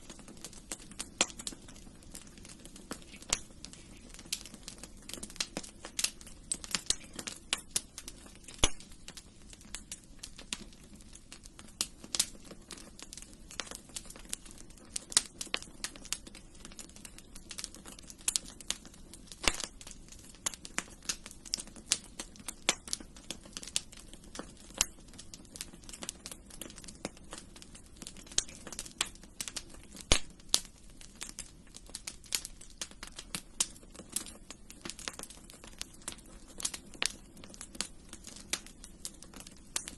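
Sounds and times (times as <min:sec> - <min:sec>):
low hiss of flame: 0:00.0 - 0:39.9
wood fire crackling and popping: 0:00.0 - 0:39.9.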